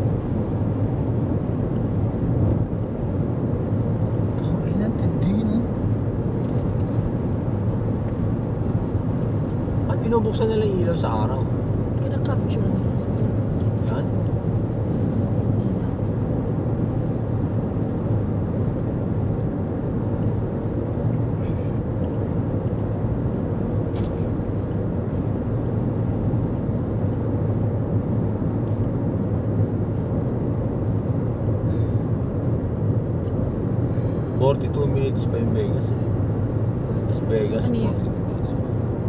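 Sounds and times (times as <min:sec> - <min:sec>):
low car hum: 0:00.0 - 0:39.0.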